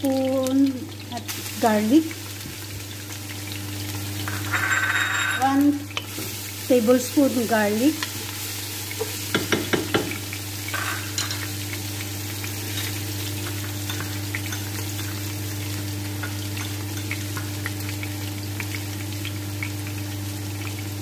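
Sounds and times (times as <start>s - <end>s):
onion and garlic sizzling in pot: 0.0s - 21.0s
wooden spatula knocking pot: 9.3s - 10.2s.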